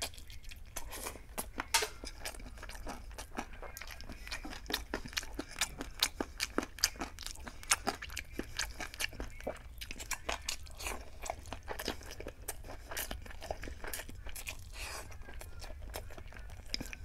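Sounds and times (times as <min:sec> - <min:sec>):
close chewing with mouth smacks: 0:00.0 - 0:17.0.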